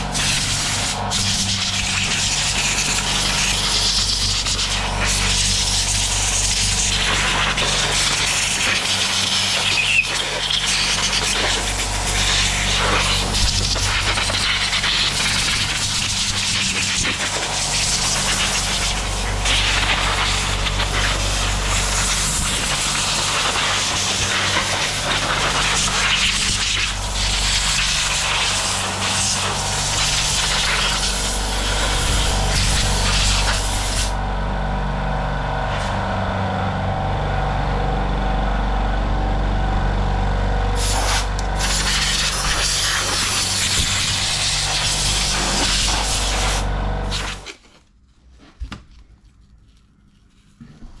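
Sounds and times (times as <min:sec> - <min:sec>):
steady low hum: 0:00.0 - 0:47.5
aerosol spray paint hissing: 0:00.1 - 0:34.2, 0:40.8 - 0:47.4.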